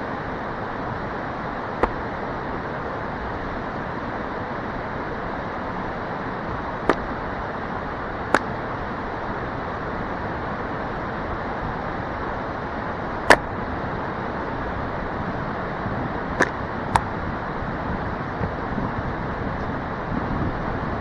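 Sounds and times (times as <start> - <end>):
wooden baton knocking axe head: 1.8 - 2.0, 16.4 - 17.1.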